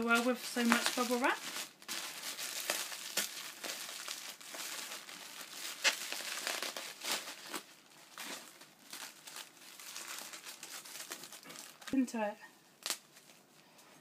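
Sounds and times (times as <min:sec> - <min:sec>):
bubble wrap crinkling and crackling: 0:00.0 - 0:13.6.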